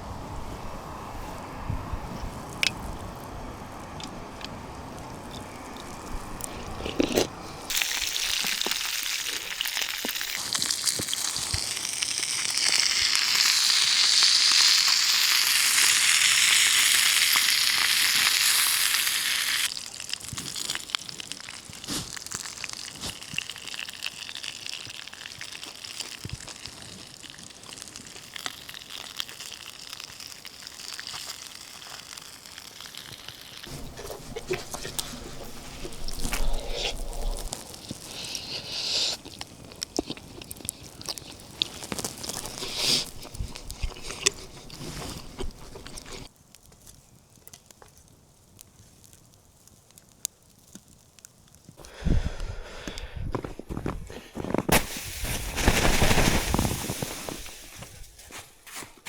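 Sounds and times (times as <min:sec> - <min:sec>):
campfire crackles: 0:00.0 - 0:58.9
fish sizzling in a frying pan: 0:07.7 - 0:33.8.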